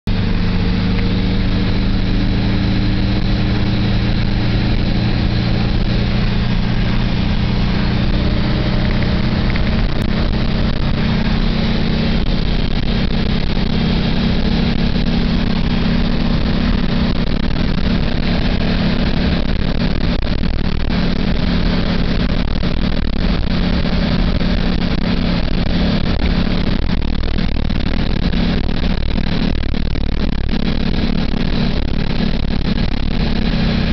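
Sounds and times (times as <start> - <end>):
car engine drone: 0.0 - 33.9
wind and road noise: 0.0 - 33.9.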